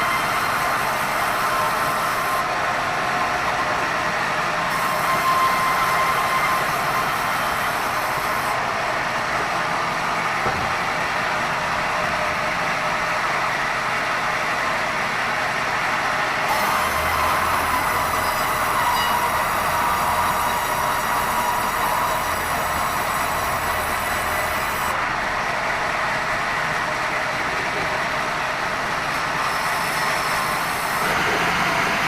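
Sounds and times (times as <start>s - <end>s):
band saw cutting timber: 4.7s - 8.6s, 16.5s - 25.0s, 29.1s - 32.0s.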